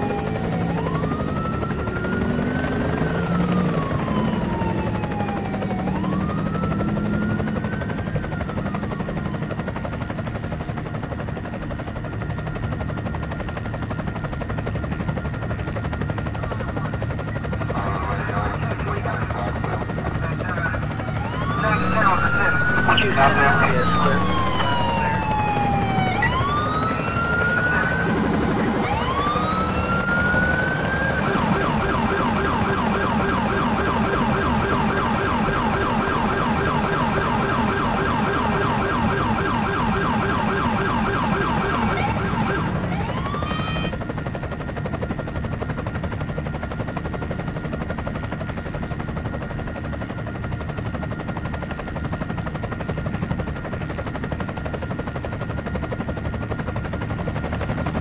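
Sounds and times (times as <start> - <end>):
police siren wailing and yelping: 0.0 - 10.1, 16.1 - 44.0
steady vehicle noise: 20.0 - 37.0.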